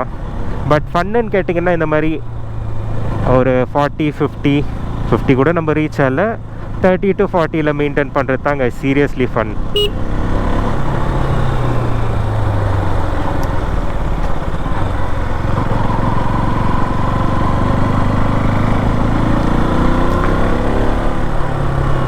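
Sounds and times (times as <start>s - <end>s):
motorcycle engine running: 9.5s - 22.0s.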